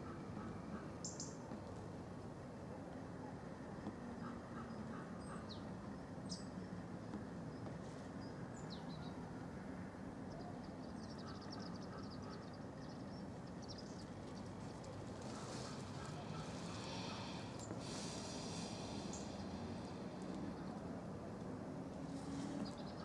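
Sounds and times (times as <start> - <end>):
small birds chirping: 10.3 - 20.9.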